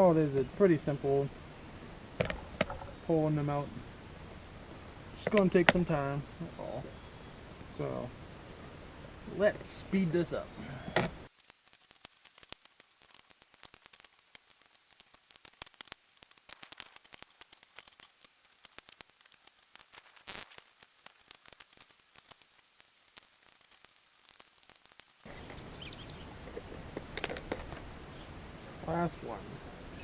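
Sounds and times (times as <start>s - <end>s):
crickets chirping: 11.3s - 30.0s.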